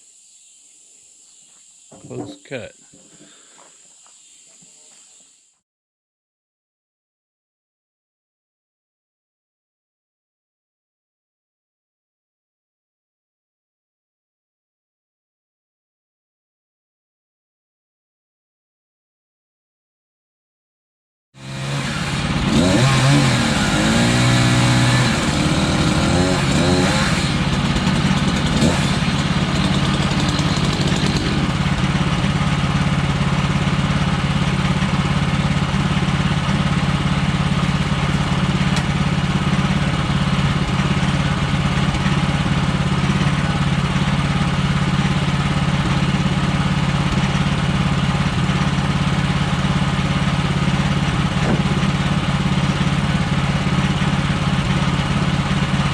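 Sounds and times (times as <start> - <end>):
sawmill gas engine revving: 21.4 - 55.9.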